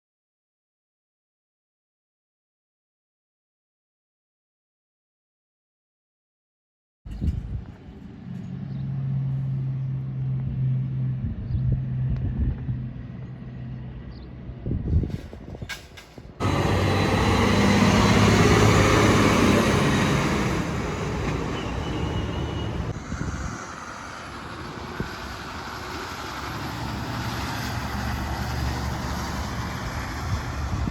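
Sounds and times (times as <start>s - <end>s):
tyre and road noise: 7.1s - 30.9s
truck driving past: 7.5s - 30.9s.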